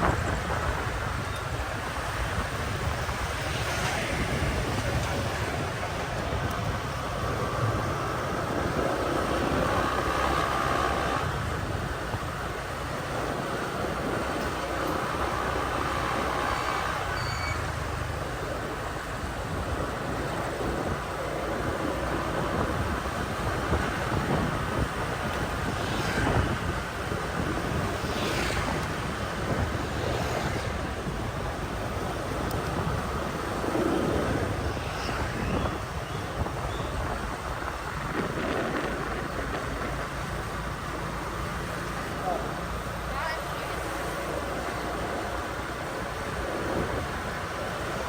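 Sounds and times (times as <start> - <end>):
motorbike engine rumble: 0.0 - 48.0
passing traffic: 0.0 - 48.0
wind rushing over microphone: 0.0 - 48.0.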